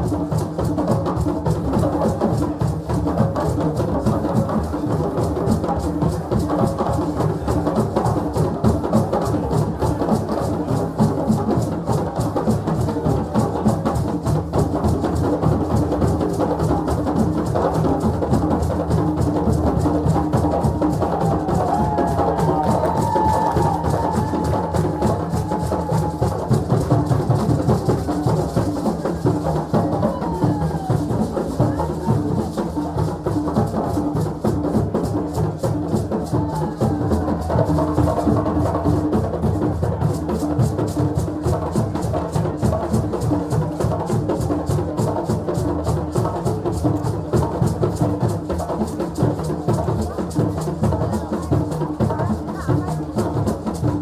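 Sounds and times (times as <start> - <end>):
drums and percussion rhythm: 0.0 - 54.0
voices: 21.0 - 26.6.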